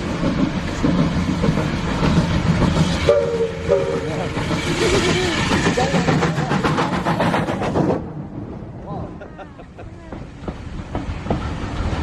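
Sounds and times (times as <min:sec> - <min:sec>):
steam train rumbling: 0:00.0 - 0:12.0
steam whistle blasts: 0:03.0 - 0:04.1.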